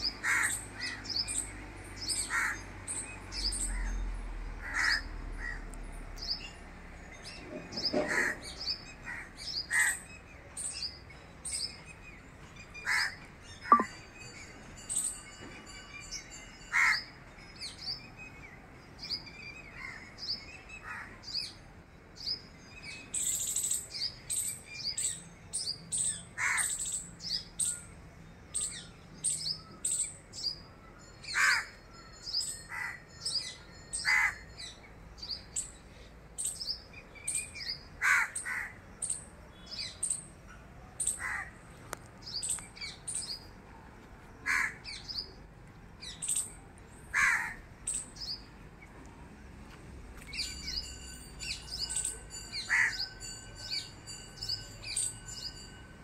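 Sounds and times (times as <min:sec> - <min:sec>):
short high bird chirps: 0:13.7 - 0:13.9.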